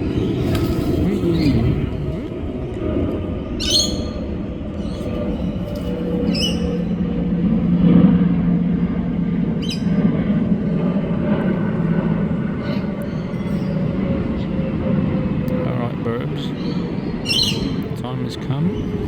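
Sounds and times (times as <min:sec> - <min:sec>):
bird chirping: 0:00.0 - 0:02.3, 0:03.6 - 0:07.1, 0:16.3 - 0:19.0
low mechanical hum: 0:00.0 - 0:19.0.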